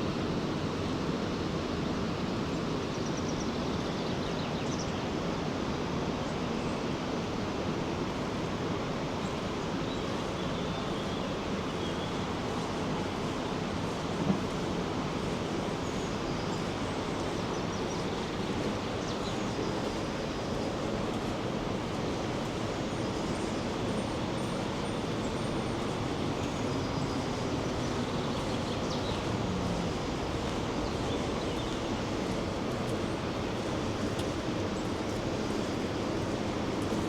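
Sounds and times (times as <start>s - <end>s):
waterfall roaring: 7.2s - 37.0s.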